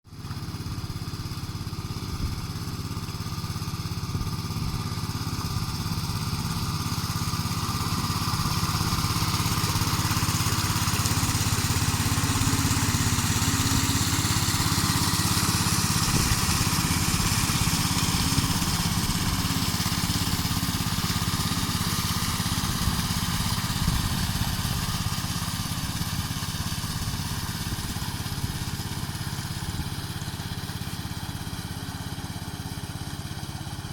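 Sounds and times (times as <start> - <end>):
small water pump engine: 0.1 - 33.9.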